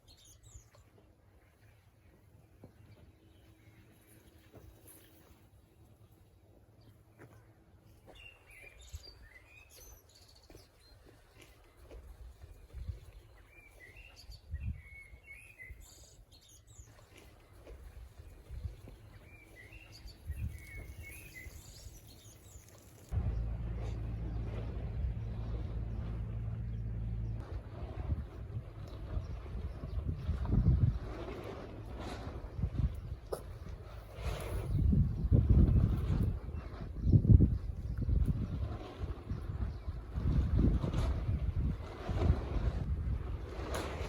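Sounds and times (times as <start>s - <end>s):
bird chirping: 19.2s - 27.4s
low rumble: 23.1s - 33.3s.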